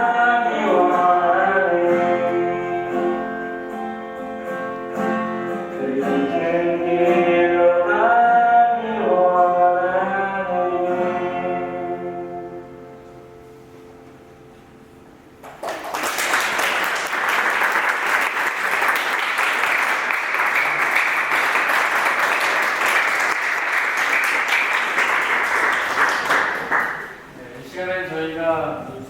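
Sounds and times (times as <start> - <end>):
audience applause: 15.4 - 27.3.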